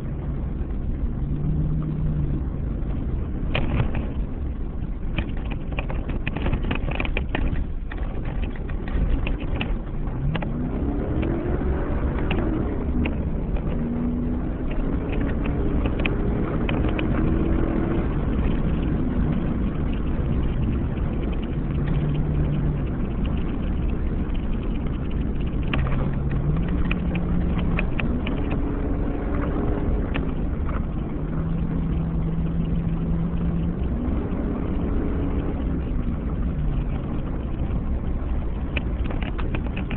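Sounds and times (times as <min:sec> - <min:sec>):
tyres rumbling on road: 0:00.0 - 0:39.9
gravel knocks and clicks: 0:00.6 - 0:39.9.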